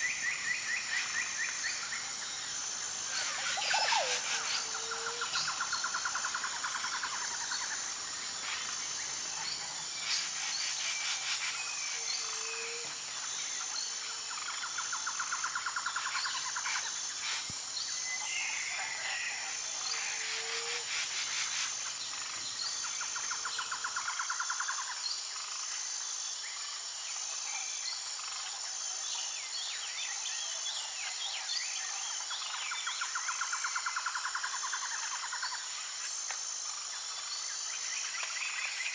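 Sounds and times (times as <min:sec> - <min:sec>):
high-pitched insect drone: 0:00.0 - 0:38.9
bird calls: 0:03.1 - 0:05.9.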